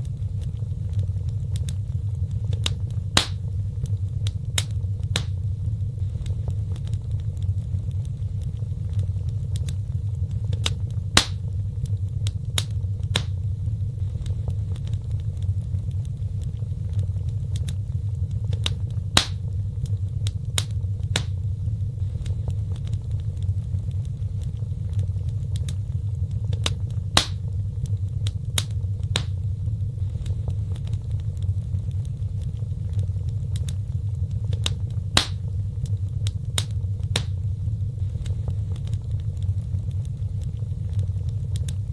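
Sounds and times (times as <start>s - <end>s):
fire crackling and popping: 0.0s - 41.9s
fire flames rumbling: 0.0s - 41.9s.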